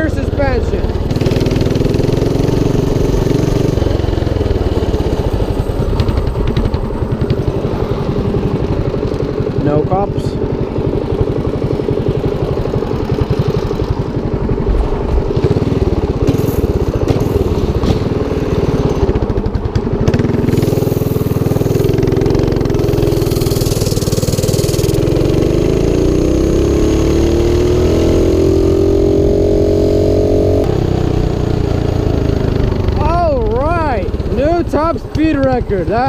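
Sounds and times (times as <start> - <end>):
mini bike engine at full throttle: 0.0 - 36.0.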